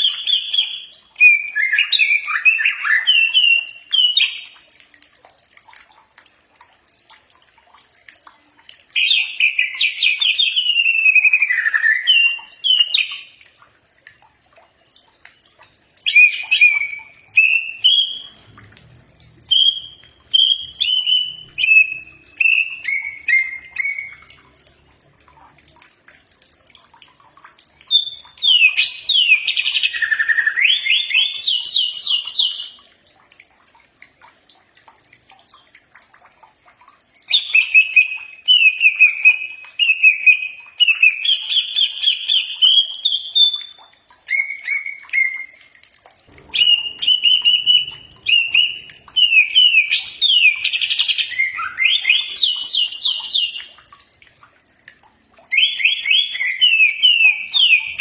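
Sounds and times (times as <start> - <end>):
bird singing whistles: 0.0 - 4.3, 16.1 - 18.3, 19.5 - 24.2, 37.3 - 45.6, 46.4 - 53.6, 55.5 - 58.0.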